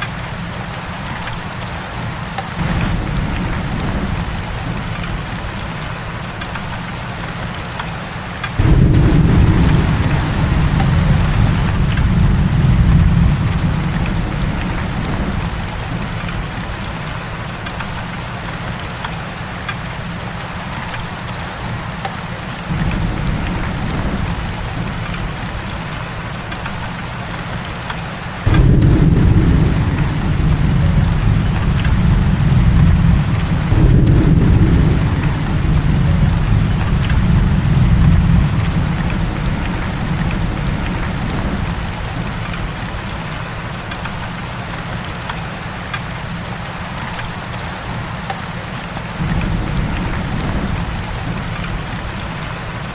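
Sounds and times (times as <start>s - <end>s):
heavy rain: 0.0s - 52.9s
thunder rumbling: 2.6s - 6.7s, 8.5s - 18.7s, 22.7s - 27.1s, 28.4s - 44.5s, 49.2s - 52.9s.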